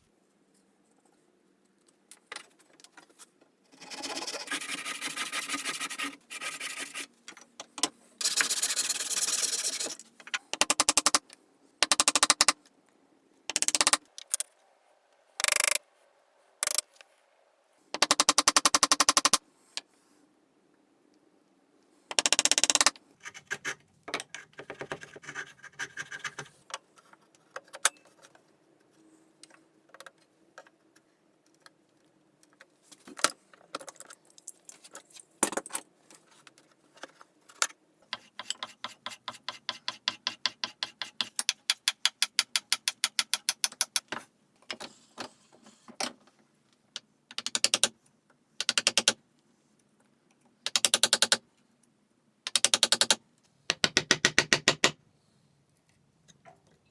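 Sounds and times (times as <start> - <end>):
hand saw sawing wood: 3.8 - 7.1, 38.2 - 41.3
tools tapping on wood: 38.2 - 44.2.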